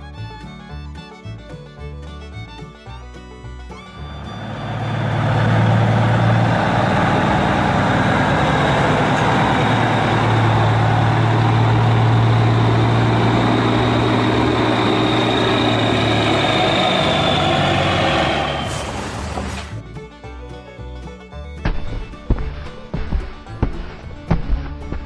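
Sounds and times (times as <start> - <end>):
truck engine running: 0.0 - 25.0
high whine: 3.9 - 19.8.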